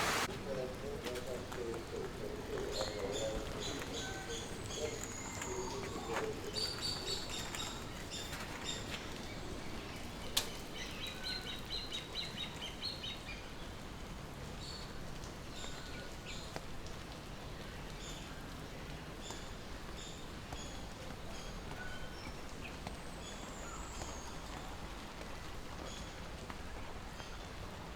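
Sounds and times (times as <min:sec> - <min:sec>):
birds chirping: 0:00.0 - 0:13.3
low background noise: 0:00.0 - 0:27.9.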